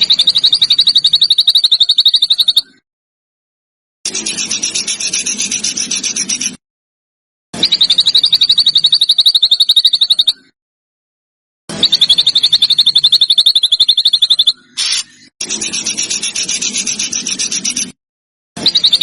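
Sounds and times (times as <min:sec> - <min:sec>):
songbird rapid trill: 0:00.0 - 0:02.8, 0:07.6 - 0:10.5, 0:11.7 - 0:18.0, 0:18.6 - 0:19.0.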